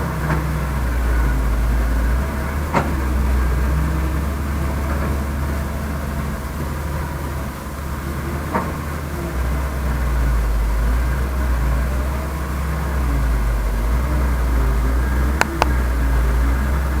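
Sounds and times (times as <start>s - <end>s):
heavy diesel engine rumbling: 0.0s - 17.0s
sharp clicks: 15.4s - 15.8s.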